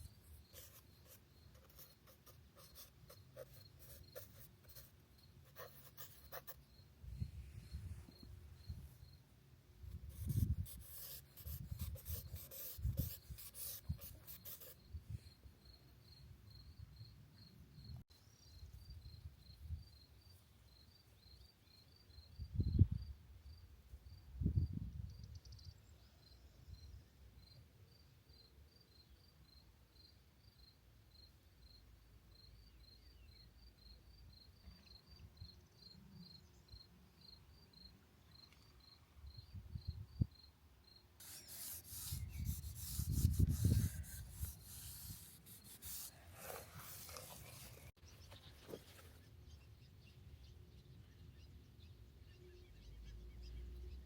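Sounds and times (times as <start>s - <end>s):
pencil scratching on paper: 0.0s - 4.9s, 5.5s - 6.6s, 10.1s - 14.8s, 41.2s - 47.9s
cricket chirping: 0.0s - 7.0s, 7.6s - 9.3s, 10.1s - 42.5s.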